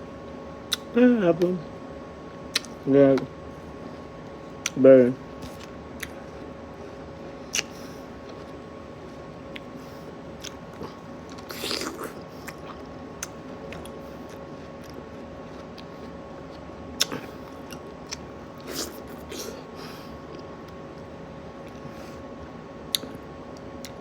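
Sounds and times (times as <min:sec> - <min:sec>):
crisp fruit bites: 0:02.5 - 0:03.3
wet chewing: 0:02.5 - 0:03.3, 0:07.5 - 0:08.6, 0:10.4 - 0:19.6.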